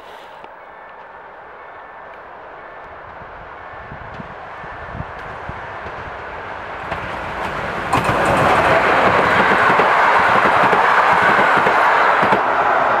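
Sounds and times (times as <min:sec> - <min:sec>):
train rolling rail noise: 0:00.0 - 0:13.0
wheels clattering over rails: 0:06.8 - 0:12.4.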